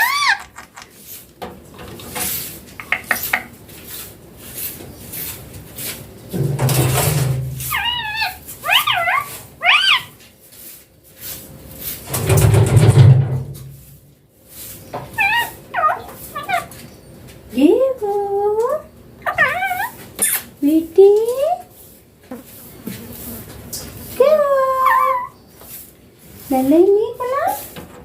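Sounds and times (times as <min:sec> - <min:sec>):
parrot warbling calls: 0:00.0 - 0:00.6, 0:15.2 - 0:16.7, 0:19.2 - 0:20.5.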